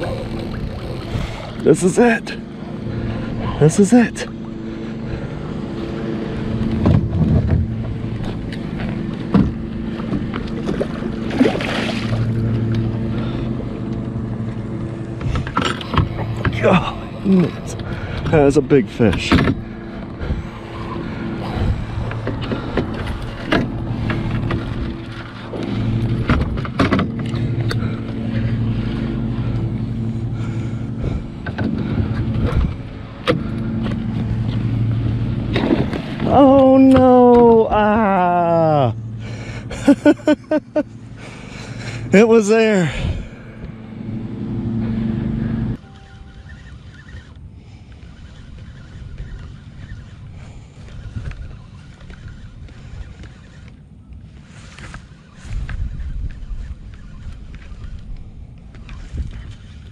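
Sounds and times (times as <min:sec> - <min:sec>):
fishing reel whirring: 0:00.0 - 0:01.6, 0:45.8 - 0:58.2
steady low hum: 0:00.0 - 0:59.9
water splashing: 0:09.9 - 0:12.6.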